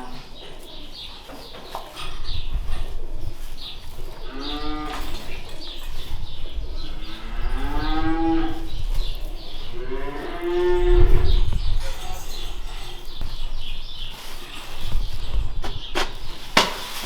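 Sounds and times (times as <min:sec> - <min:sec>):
cows mooing: 0:04.2 - 0:05.6, 0:06.7 - 0:08.8, 0:09.6 - 0:11.5.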